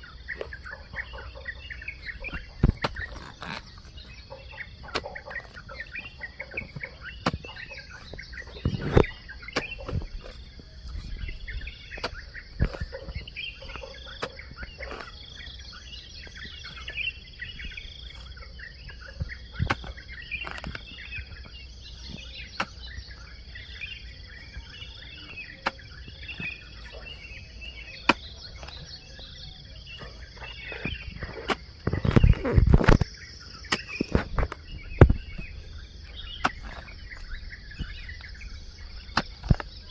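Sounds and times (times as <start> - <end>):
hoe blade striking soil: 0.0 - 18.4, 19.2 - 39.9
birds chirping and calling: 0.0 - 39.9
insects humming: 0.0 - 39.9.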